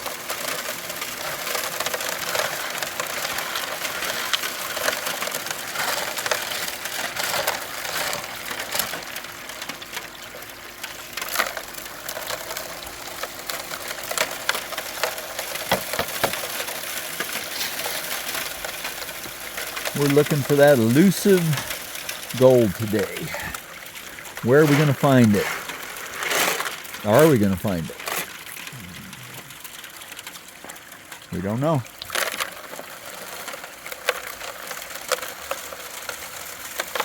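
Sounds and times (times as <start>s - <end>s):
gravel rattling and scraping: 0.0s - 37.0s.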